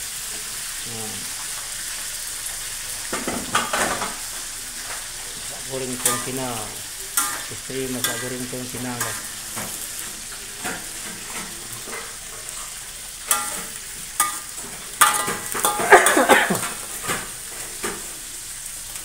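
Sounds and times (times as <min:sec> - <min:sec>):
eggplant sizzling in a wok: 0:00.0 - 0:19.0
metal spatula clanking on wok: 0:06.0 - 0:06.6, 0:07.2 - 0:09.3, 0:13.3 - 0:16.8.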